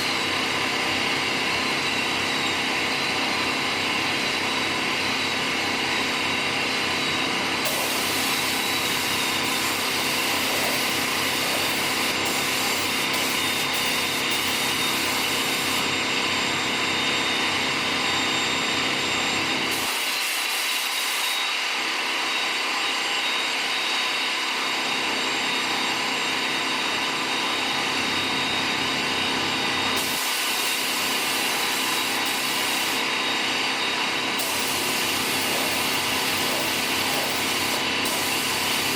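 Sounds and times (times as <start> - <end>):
shop machinery hum: 0.0 - 38.9
hissing air: 34.4 - 38.9.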